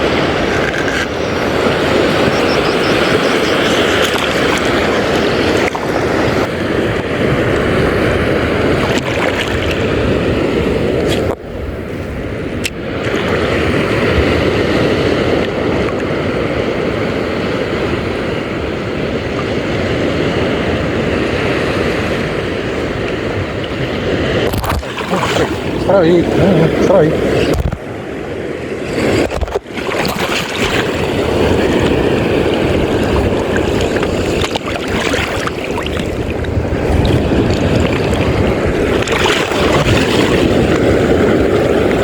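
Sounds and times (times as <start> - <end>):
wind and sea water rushing: 0.0 - 42.0.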